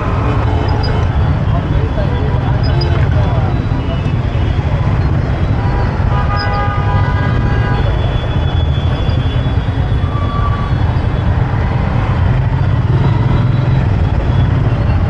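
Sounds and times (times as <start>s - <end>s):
motorbike engine and road noise: 0.0s - 15.0s
vehicle horn: 5.5s - 8.2s.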